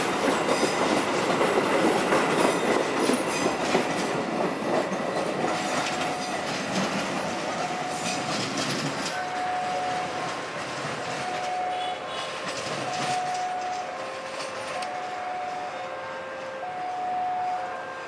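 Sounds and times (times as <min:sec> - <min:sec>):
train wheels clattering: 0:00.0 - 0:15.2.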